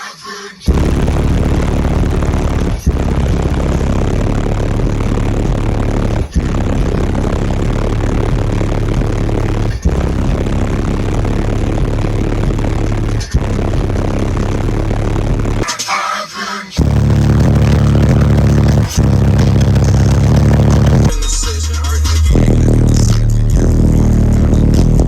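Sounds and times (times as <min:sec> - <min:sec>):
diesel truck engine droning: 0:00.7 - 0:15.6, 0:16.8 - 0:21.5, 0:22.3 - 0:25.0.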